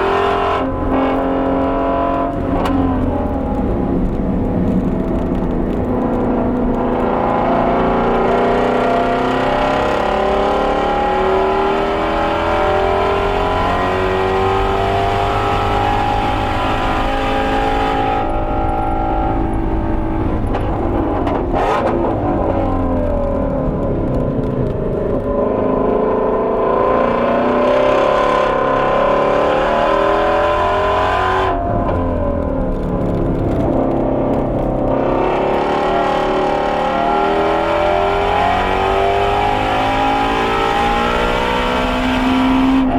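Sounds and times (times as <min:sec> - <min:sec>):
car engine accelerating hard: 0:00.0 - 0:42.9
exhaust crack: 0:00.0 - 0:42.9.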